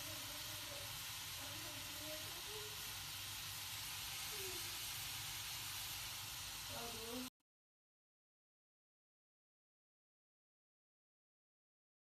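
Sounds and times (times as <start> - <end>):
steady hiss: 0.0 - 7.3.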